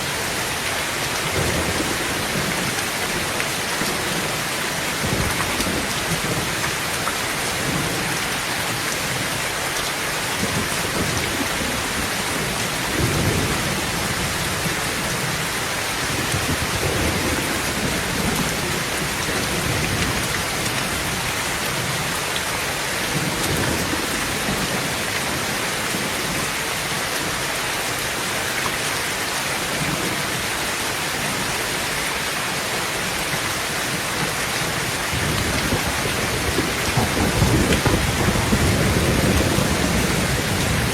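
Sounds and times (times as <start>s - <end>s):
heavy rain on tin roof: 0.0s - 40.9s
thunder rumbling: 34.7s - 40.9s.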